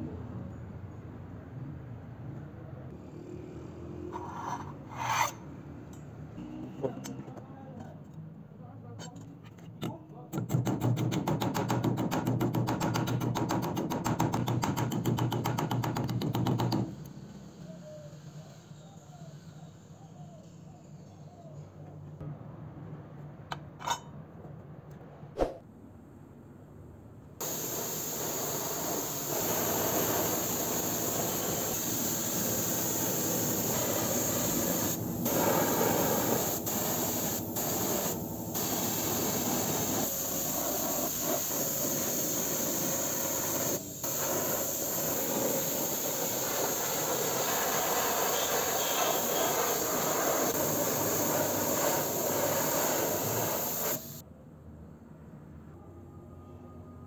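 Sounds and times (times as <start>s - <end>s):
paint spraying hiss: 27.4s - 54.2s.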